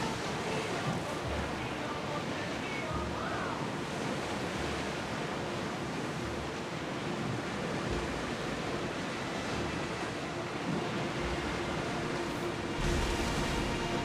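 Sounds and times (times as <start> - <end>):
sea waves rushing: 0.0 - 14.0.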